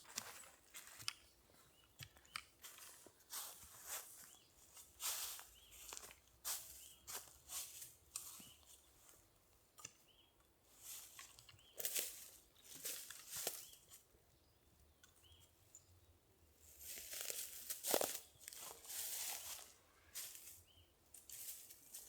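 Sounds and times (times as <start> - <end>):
footsteps on dry ground: 0.0 - 8.9, 11.7 - 13.9, 16.8 - 22.0.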